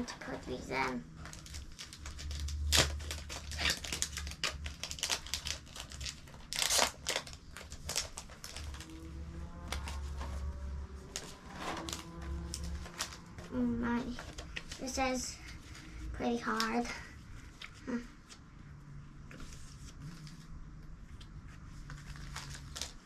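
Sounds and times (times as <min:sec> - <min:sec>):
plastic and card crinkling: 0:00.0 - 0:18.4, 0:19.3 - 0:23.0
packaging clicks and rustles: 0:01.1 - 0:15.6, 0:21.8 - 0:23.0.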